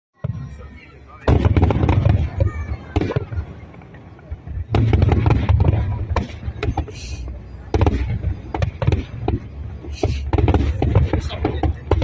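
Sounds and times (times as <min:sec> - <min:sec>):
crackling hiss of fireworks: 0:00.2 - 0:12.0
deep continuous rumble: 0:00.2 - 0:12.0
fireworks exploding: 0:00.2 - 0:12.0.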